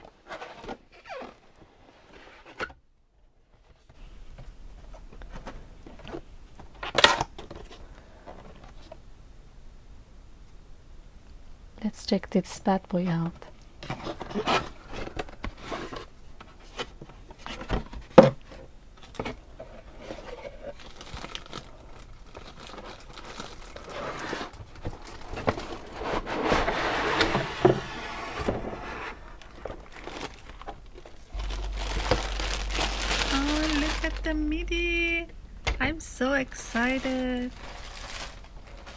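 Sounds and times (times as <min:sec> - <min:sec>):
plastic and cardboard crinkling: 0:13.3 - 0:35.1, 0:36.5 - 0:38.9
packaging tearing: 0:29.4 - 0:30.8, 0:31.4 - 0:34.3, 0:36.8 - 0:38.9.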